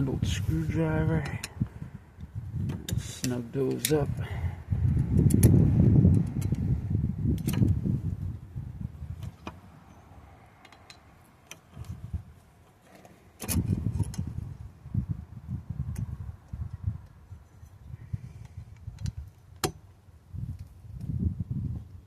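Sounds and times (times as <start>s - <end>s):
low rubbing rumble of handling: 0.0s - 18.6s
metal clicks and clinks: 10.6s - 11.7s.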